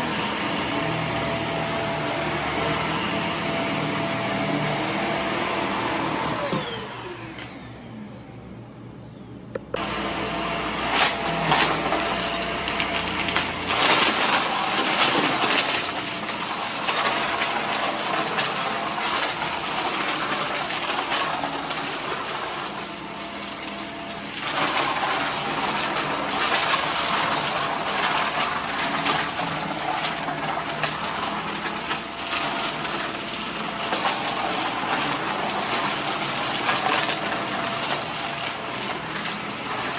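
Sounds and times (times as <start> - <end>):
vacuum cleaner motor: 0.0 - 8.4, 9.6 - 39.9
debris rattling in hose: 10.8 - 39.9.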